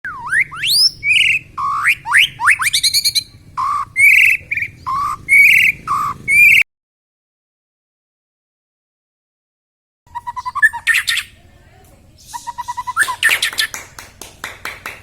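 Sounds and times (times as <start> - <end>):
songbird whistling song: 0.1 - 6.6, 10.1 - 11.4, 12.1 - 14.9.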